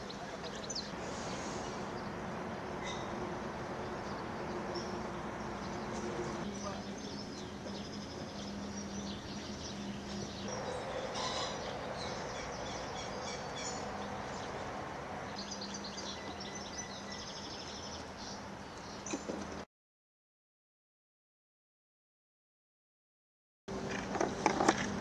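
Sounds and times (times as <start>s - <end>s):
birds twittering: 0.0s - 19.6s.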